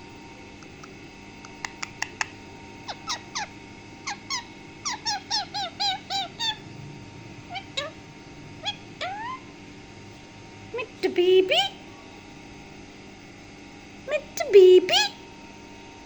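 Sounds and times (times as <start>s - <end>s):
sharp clicks: 0.6s - 2.3s
parrot chirps and squeaks: 2.9s - 6.6s, 7.5s - 8.0s, 8.6s - 9.5s.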